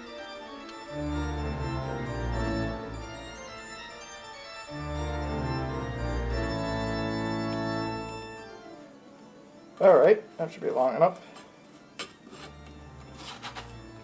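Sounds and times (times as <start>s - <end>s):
sustained organ chords: 0.0s - 14.0s.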